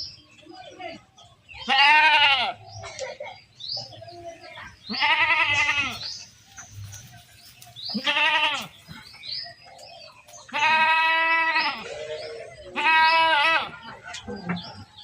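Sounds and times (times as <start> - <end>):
goats bleating: 1.6 - 2.6, 4.9 - 6.1, 7.9 - 8.9, 10.4 - 14.0.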